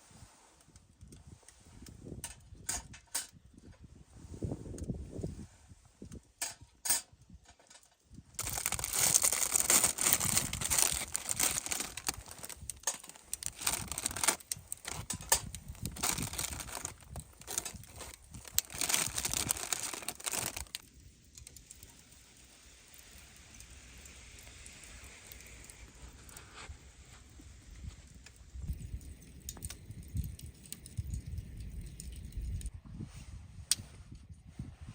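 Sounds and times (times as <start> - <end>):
crinkling and crumpling: 7.4 - 22.0.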